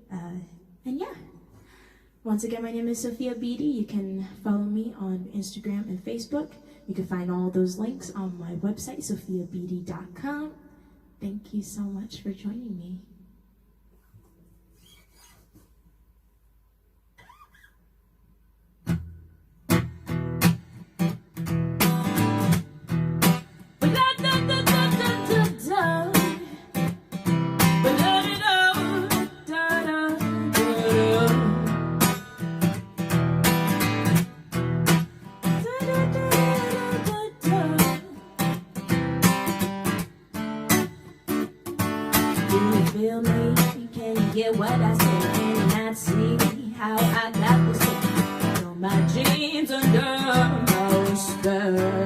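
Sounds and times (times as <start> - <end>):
acoustic guitar strumming: 18.8 - 52.0.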